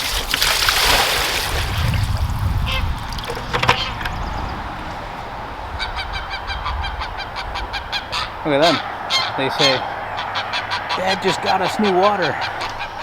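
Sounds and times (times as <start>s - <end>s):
water poured into a bucket: 0.0s - 3.4s
geese honking: 2.7s - 13.0s.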